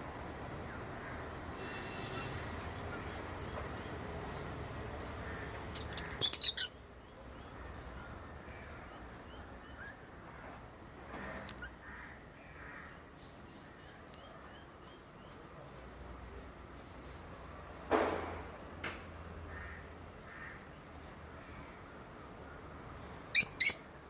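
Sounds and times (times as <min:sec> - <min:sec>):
lovebirds chirping: 0:05.5 - 0:08.2, 0:23.3 - 0:23.8.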